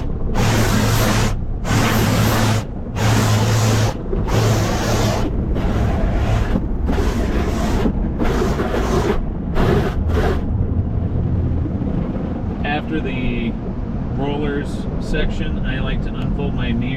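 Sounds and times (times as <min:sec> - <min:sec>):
water and brushes rushing over car: 0:00.0 - 0:10.5
steady low hum: 0:00.0 - 0:16.9.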